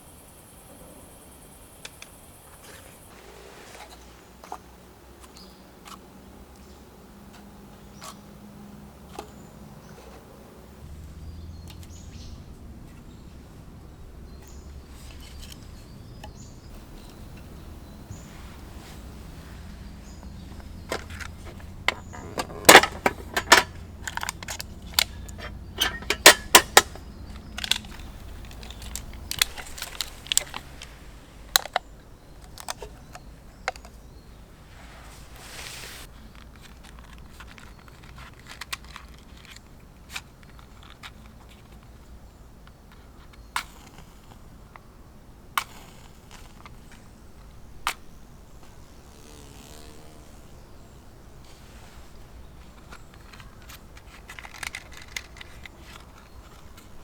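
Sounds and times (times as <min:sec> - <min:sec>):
campfire crackling and popping: 0:26.2 - 0:31.8.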